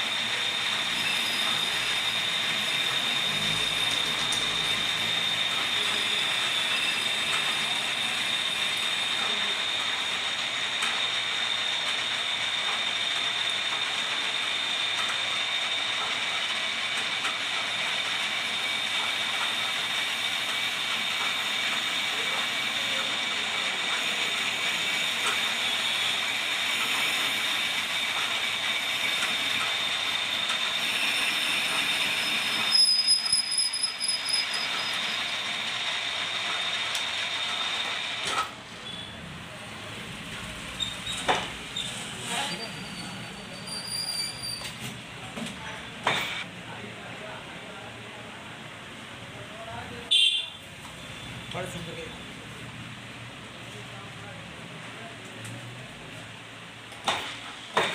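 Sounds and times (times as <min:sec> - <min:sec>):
metal lathe whining and rattling: 0:00.0 - 0:39.5
high squeal: 0:00.1 - 0:09.6, 0:18.5 - 0:35.6, 0:38.7 - 0:39.2, 0:40.7 - 0:44.9.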